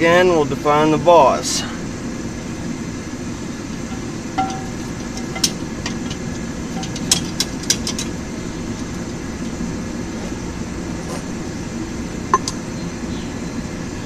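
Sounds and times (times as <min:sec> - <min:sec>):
light metal clinks: 0:03.9 - 0:08.2
forge roaring: 0:08.2 - 0:12.5.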